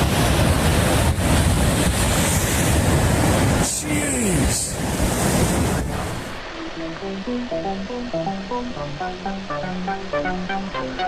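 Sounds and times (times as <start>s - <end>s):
wind buffeting microphone: 0.0s - 3.8s, 4.4s - 6.5s
churning water roaring: 0.0s - 11.0s.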